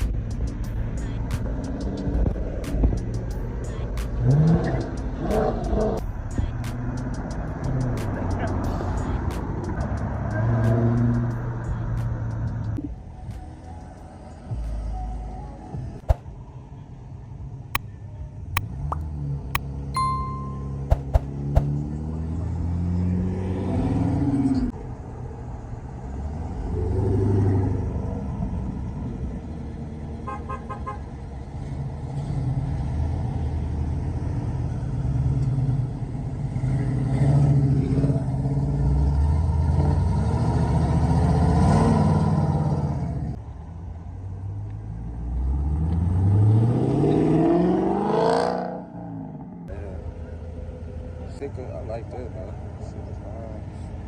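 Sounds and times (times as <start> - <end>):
car engine revving: 0.0 - 12.8, 45.0 - 51.4.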